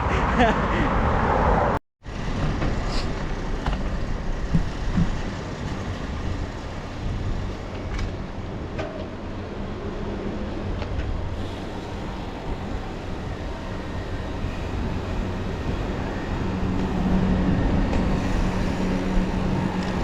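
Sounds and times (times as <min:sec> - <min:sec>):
road traffic rumble: 0:00.0 - 0:20.0
wind noise: 0:00.0 - 0:20.0
motor vehicle engine hum: 0:01.4 - 0:20.0.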